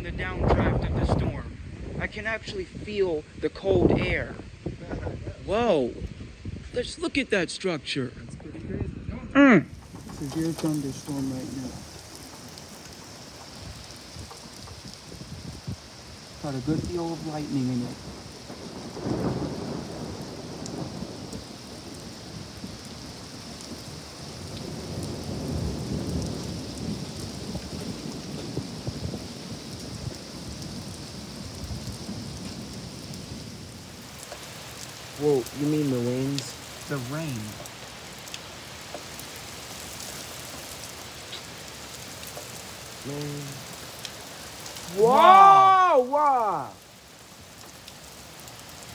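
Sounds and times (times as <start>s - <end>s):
steady rain: 9.4s - 48.9s
drops ticking nearby: 9.7s - 19.5s, 34.0s - 48.9s
thunder rumbling: 9.7s - 48.9s.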